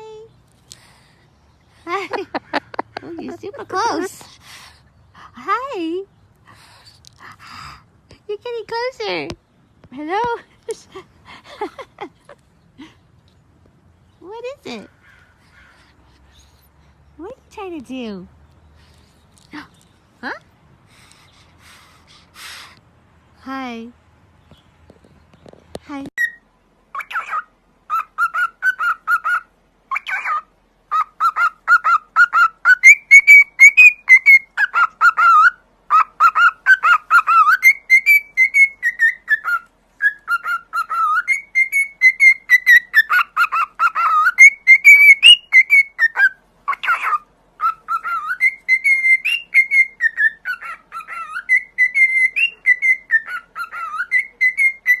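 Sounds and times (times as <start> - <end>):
parrot chirping and whistling: 26.2 - 55.0.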